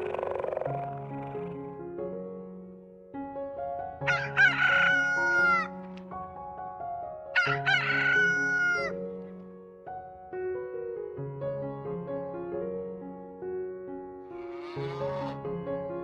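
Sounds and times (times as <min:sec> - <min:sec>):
piano music: 0:00.0 - 0:16.0
rooster crowing: 0:04.1 - 0:05.8, 0:07.4 - 0:09.0.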